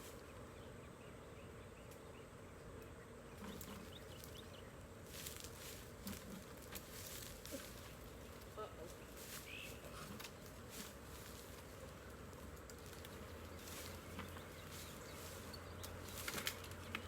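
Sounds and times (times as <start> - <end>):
bee swarm humming: 0.0 - 17.0
rustling: 5.0 - 17.0.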